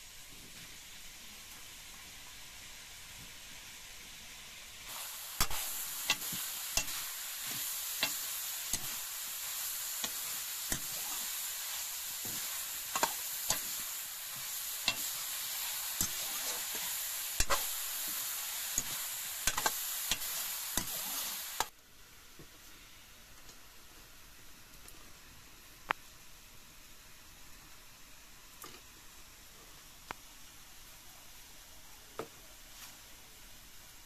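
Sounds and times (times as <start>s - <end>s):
meat sizzling in a wok: 0.0s - 21.7s
metal ladle scraping wok: 5.4s - 9.1s.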